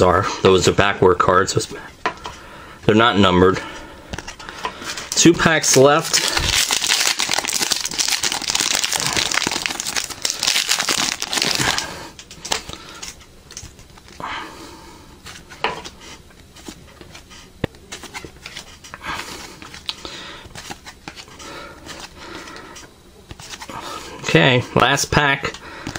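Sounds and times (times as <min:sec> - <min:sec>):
cards rustling and flicking: 0:04.1 - 0:14.2, 0:15.3 - 0:22.6, 0:23.3 - 0:23.8
wrapper crinkling and tearing: 0:05.1 - 0:13.2.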